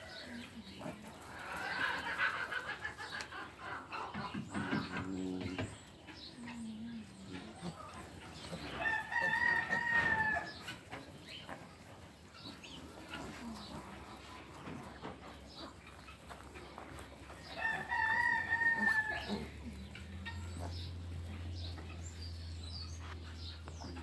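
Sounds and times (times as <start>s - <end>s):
rooster crowing: 8.7s - 10.6s, 17.5s - 19.5s.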